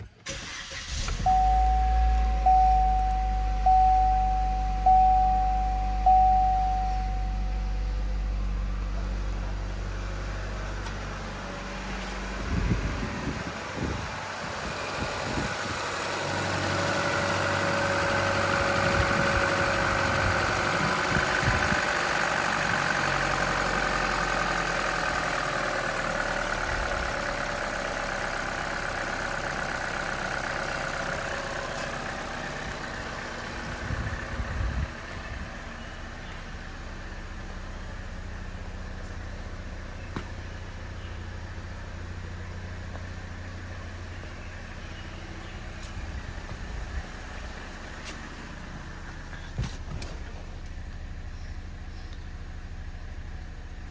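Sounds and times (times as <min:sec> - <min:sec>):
car engine idling: 0:00.0 - 0:53.9
dash warning chimes: 0:01.1 - 0:08.6.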